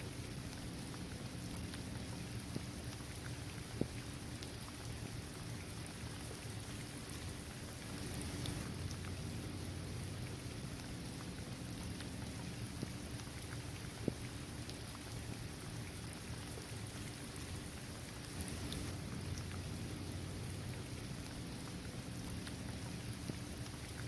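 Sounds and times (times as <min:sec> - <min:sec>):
steady rain falling: 0:00.0 - 0:24.0
single raindrops ticking: 0:07.9 - 0:09.2, 0:18.2 - 0:23.8.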